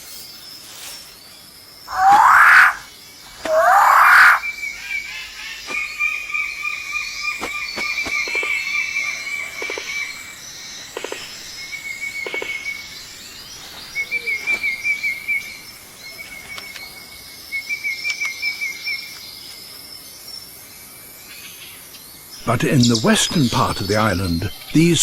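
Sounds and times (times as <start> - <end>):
short animal calls: 1.9 - 4.4.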